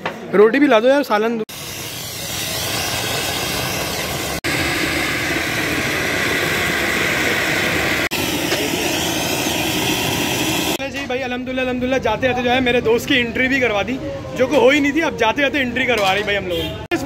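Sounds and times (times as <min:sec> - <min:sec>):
fireworks hissing roar: 0:01.5 - 0:10.8.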